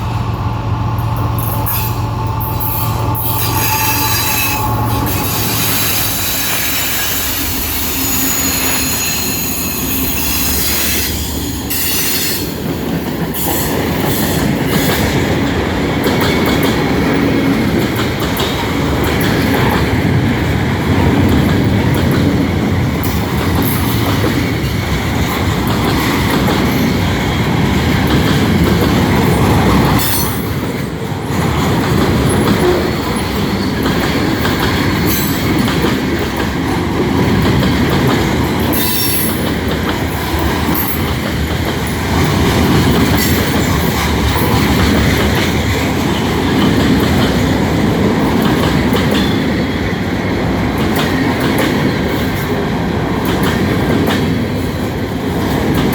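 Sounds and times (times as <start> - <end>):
train rumble: 0.0 - 55.9
train wheels clicking over rail joints: 0.0 - 55.9
wheel squeals: 1.4 - 12.5.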